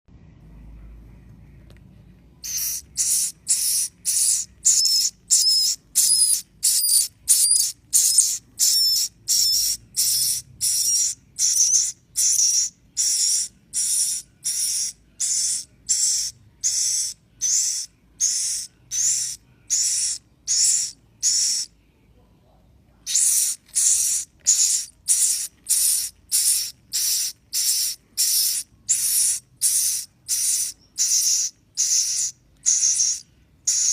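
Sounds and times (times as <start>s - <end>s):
swiftlet chicks chirping: 2.4s - 21.7s, 23.0s - 33.9s.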